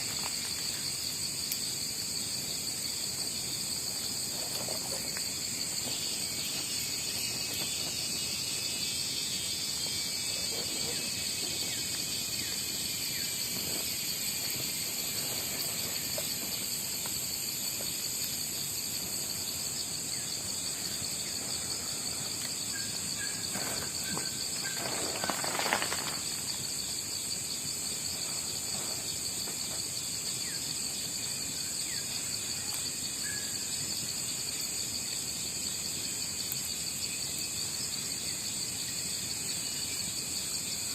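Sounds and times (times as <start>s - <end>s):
crickets and insects trilling: 0.0s - 40.9s
rustle and knock: 23.5s - 26.3s.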